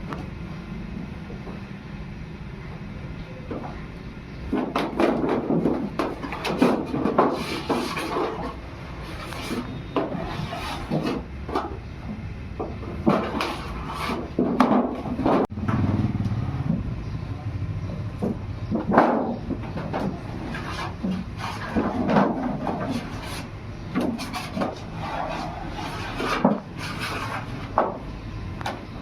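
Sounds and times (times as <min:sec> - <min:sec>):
low workshop rumble: 0:00.0 - 0:29.0
scraping and knocking on sheet steel: 0:04.5 - 0:11.8, 0:12.6 - 0:15.8, 0:18.2 - 0:28.0.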